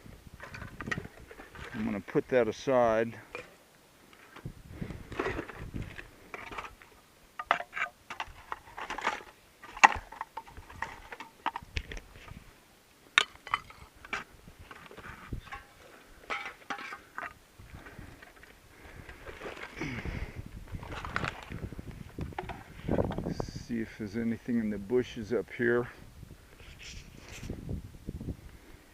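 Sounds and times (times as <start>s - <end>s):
glass and metal junk clinking: 16.3s - 17.3s.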